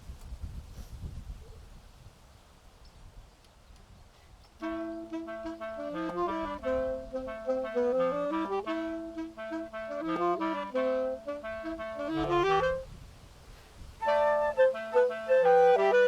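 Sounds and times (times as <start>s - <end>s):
wind rumble on microphone: 0.0s - 16.0s
woodwind trio playing: 4.6s - 12.9s, 14.0s - 16.0s.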